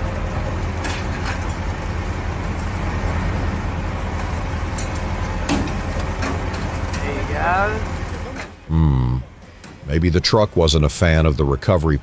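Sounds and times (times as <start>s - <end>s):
heavy vehicle engine running: 0.0s - 10.2s.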